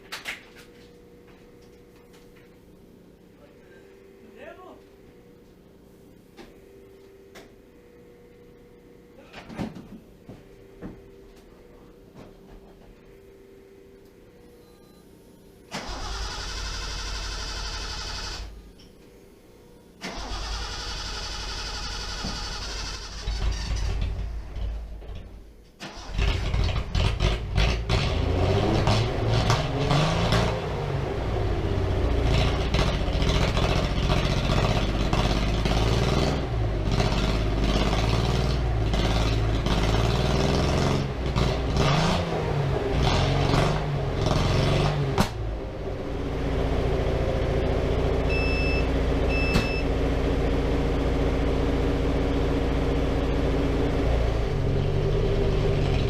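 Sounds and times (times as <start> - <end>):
car engine revving: 25.9 - 48.4
short high beeps: 48.3 - 49.9.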